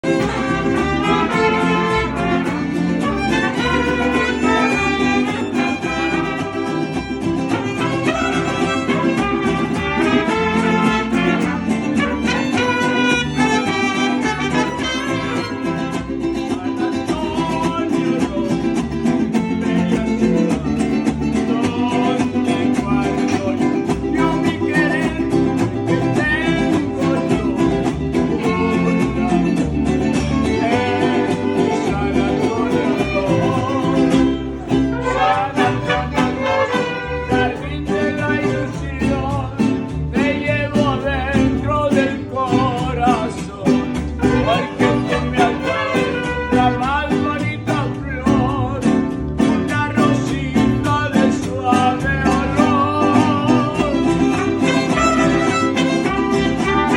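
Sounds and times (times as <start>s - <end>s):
violins: 0.0s - 16.3s, 25.2s - 38.3s, 43.9s - 47.2s, 52.6s - 56.9s
person singing: 0.0s - 49.0s, 49.6s - 56.9s
mariachi band playing: 0.0s - 56.9s
strummed guitars: 0.0s - 56.9s.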